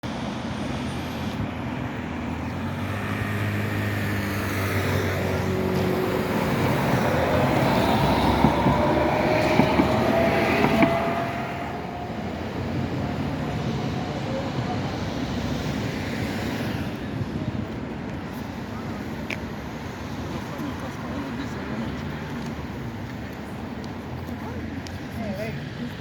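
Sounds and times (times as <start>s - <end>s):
electric tram motor whine: 0.8s - 14.7s
wheels clicking on rails: 5.1s - 14.0s.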